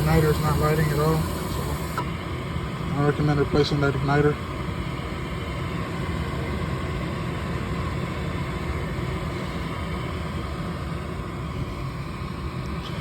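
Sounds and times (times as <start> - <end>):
furnace motor whirring: 0.0 - 2.4.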